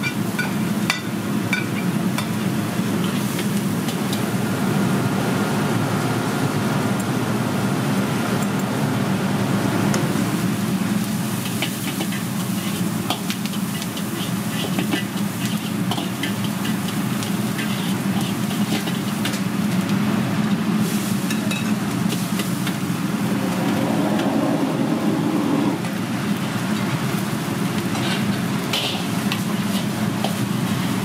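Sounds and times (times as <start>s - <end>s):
food sizzling: 0.0s - 6.0s, 10.0s - 31.0s
steady low roar: 22.6s - 26.8s.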